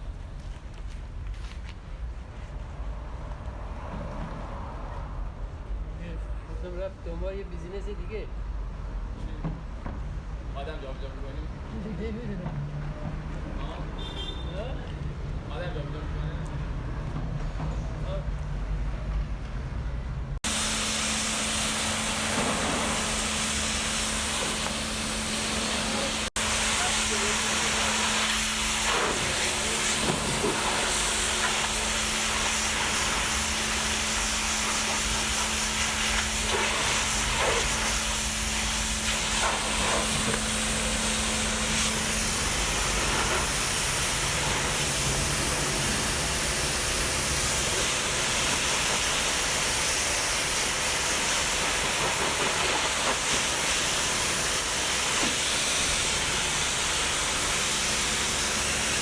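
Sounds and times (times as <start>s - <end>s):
hissing spray: 20.4s - 59.0s.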